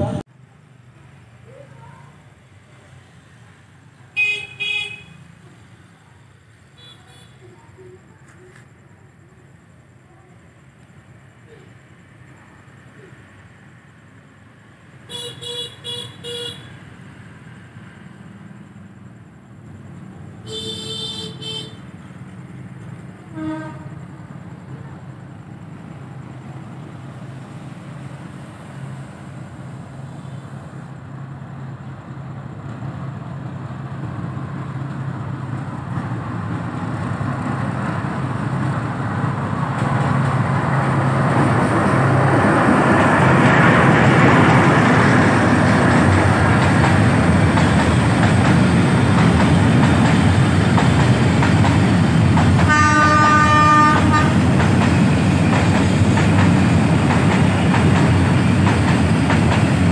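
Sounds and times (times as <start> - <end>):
locomotive engine: 16.3 - 59.9
train horn: 23.3 - 24.0, 52.7 - 54.5
wagons rumbling past: 30.8 - 59.9.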